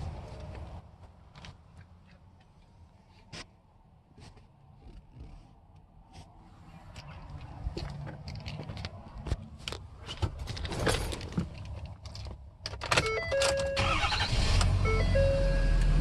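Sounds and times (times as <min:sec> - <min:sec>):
diesel engine starting and running: 0:06.8 - 0:16.0
warning chime of stepping tones: 0:14.8 - 0:16.0.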